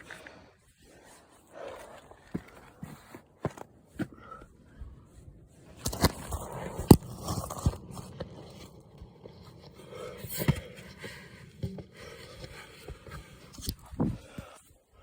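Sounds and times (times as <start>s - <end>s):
footsteps crunching: 5.6s - 13.8s.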